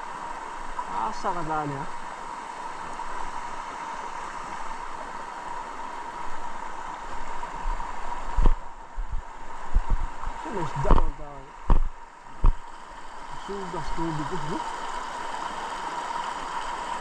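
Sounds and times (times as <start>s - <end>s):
river water rushing: 0.0s - 17.0s
thin steady whine: 0.0s - 17.0s
low thumps: 8.3s - 10.1s, 10.8s - 12.7s.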